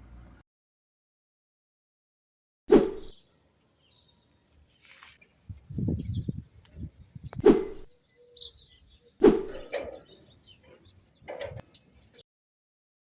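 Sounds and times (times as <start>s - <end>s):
high bird chirps: 3.0s - 12.2s.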